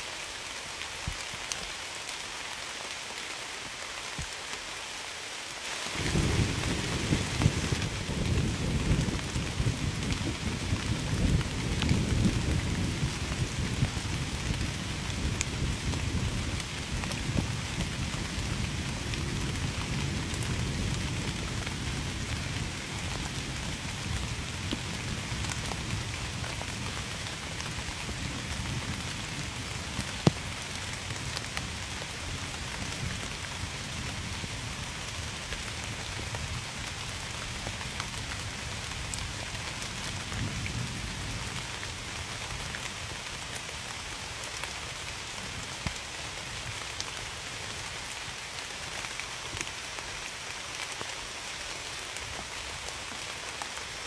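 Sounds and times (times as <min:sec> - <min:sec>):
heavy rain: 0:00.0 - 0:54.0
low thunder rumble: 0:06.0 - 0:30.6.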